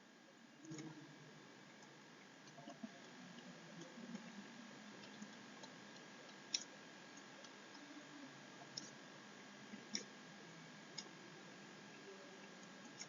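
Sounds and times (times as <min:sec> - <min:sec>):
faint sharp clicks: 0:05.0 - 0:07.8, 0:09.9 - 0:10.2.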